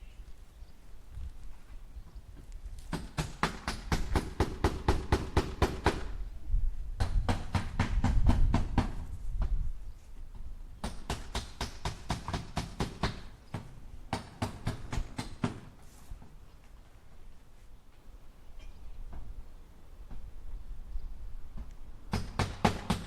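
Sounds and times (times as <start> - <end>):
hammer driving nails into wood: 2.9 - 6.1, 10.8 - 15.7, 22.1 - 23.0.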